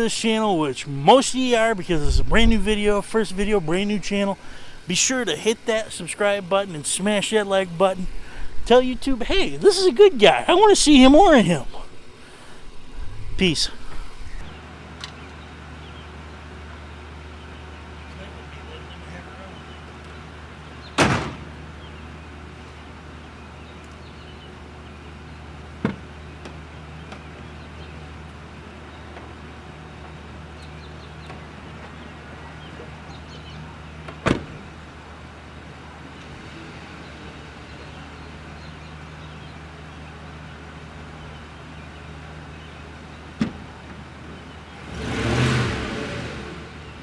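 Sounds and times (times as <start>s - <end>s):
truck engine idling: 0.0s - 14.6s.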